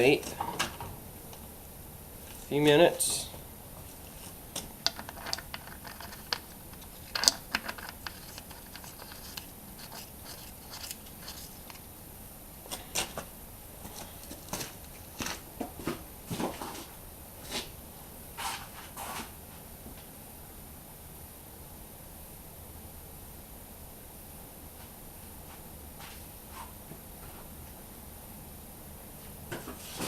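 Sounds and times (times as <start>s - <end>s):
handling clicks rustles and scrapes: 3.8s - 11.9s, 12.6s - 15.4s.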